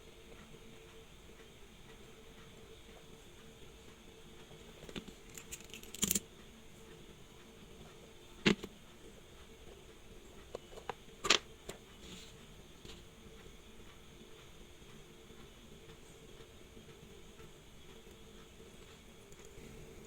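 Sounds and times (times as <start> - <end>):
low steady hum: 0.0 - 20.0
small metal tools clicking and tapping: 4.8 - 6.2.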